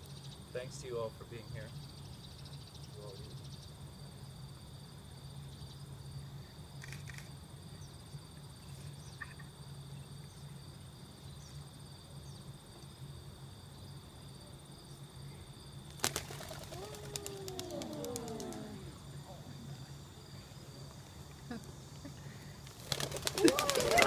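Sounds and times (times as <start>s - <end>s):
high-pitched insect chorus: 0.0s - 24.0s
faint short sounds: 16.5s - 19.9s.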